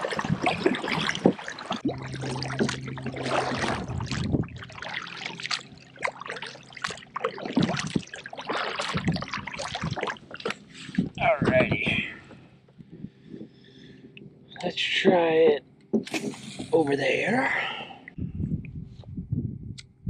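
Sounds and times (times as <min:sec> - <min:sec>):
water trickling off paddle: 0:00.0 - 0:11.2
paddle splashing water: 0:00.0 - 0:12.5
low steady hum: 0:00.0 - 0:20.0.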